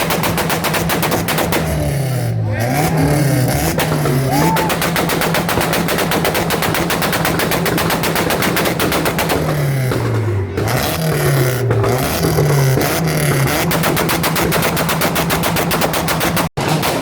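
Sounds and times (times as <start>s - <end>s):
exhaust pops and backfires: 0.0s - 17.0s
car engine on rev limiter: 1.6s - 5.0s, 9.4s - 16.4s.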